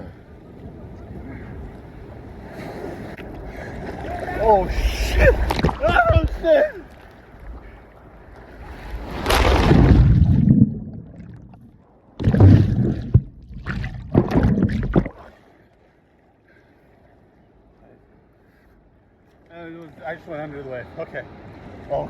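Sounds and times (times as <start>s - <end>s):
surf rushing: 0.0s - 15.4s
muffled underwater hush: 0.0s - 15.5s
water churning and splashing: 0.0s - 17.3s.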